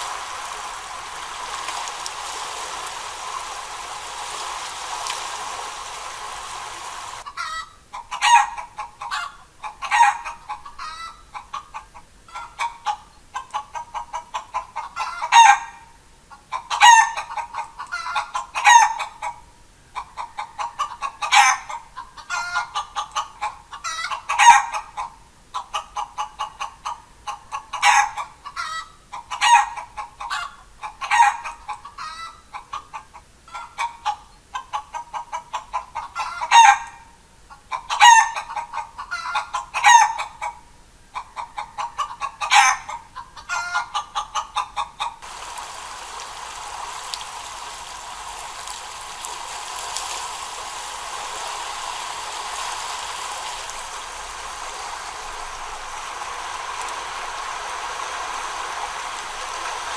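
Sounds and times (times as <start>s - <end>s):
steady hiss: 0.0s - 8.1s, 12.0s - 26.4s, 45.2s - 59.9s
chickens clucking: 0.0s - 19.4s, 20.0s - 59.9s.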